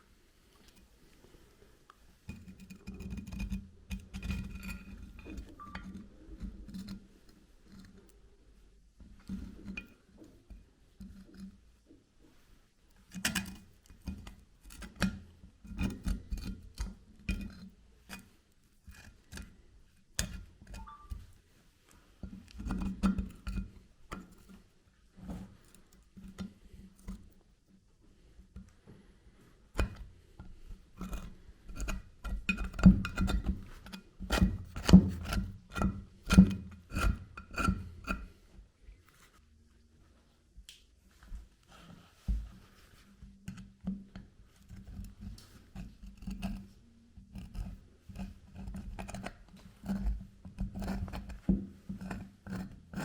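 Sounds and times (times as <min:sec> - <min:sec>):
metal clicks knocks and scraping: 0:29.8 - 0:38.5.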